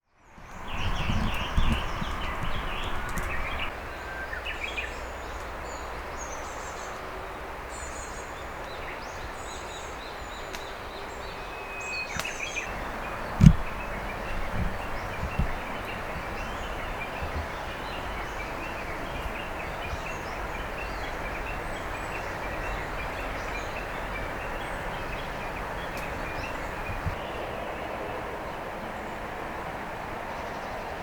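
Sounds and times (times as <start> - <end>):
small birds chirping: 0.3 - 27.9
flowing river water: 0.5 - 31.0
soft knocks: 12.7 - 18.4
dull thump: 13.3 - 17.6.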